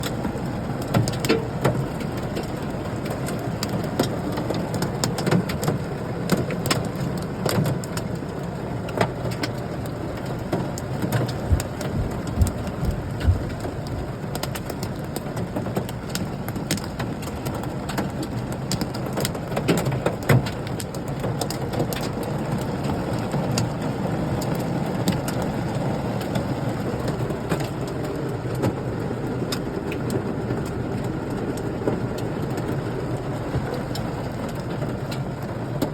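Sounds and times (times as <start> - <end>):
steady rain falling: 0.0 - 35.9
hailstones striking: 10.3 - 25.6.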